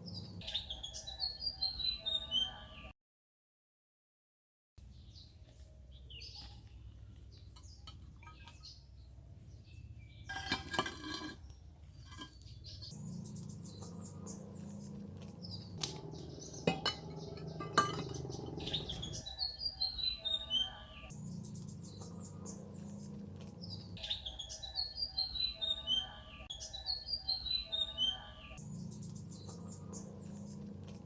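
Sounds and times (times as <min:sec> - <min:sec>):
small birds chirping: 0:00.0 - 0:02.9, 0:04.8 - 0:31.0
hard objects clinking: 0:10.3 - 0:12.6, 0:15.8 - 0:19.2.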